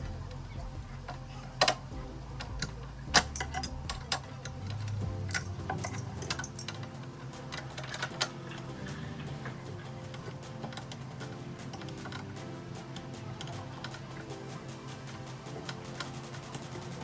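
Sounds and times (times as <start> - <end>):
quiet background music: 0.0 - 17.0
metal tools clinking: 2.6 - 6.9.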